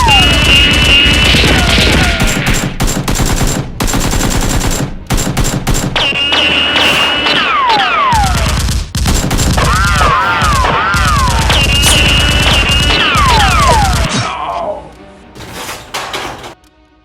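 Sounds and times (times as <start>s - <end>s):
machine-gun fire: 0.0s - 14.1s
music: 10.1s - 17.0s.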